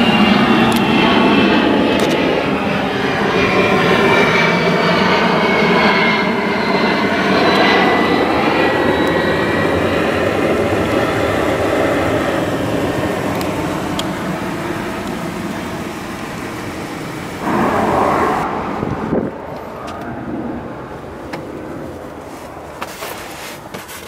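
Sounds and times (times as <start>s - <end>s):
car engine revving: 7.3s - 20.6s.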